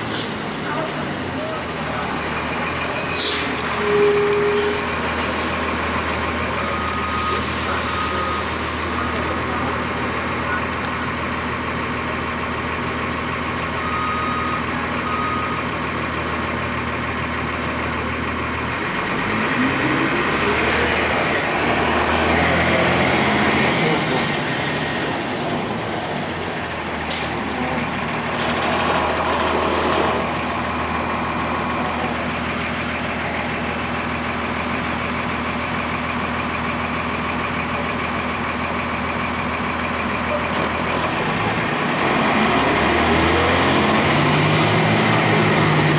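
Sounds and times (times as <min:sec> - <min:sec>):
diesel bus engine revving: 0:00.0 - 0:45.9.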